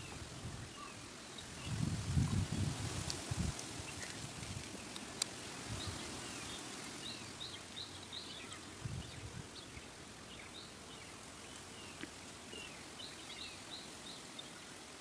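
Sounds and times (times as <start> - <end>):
faint outdoor background noise: 0.0 - 15.0
birds chirping: 3.8 - 15.0.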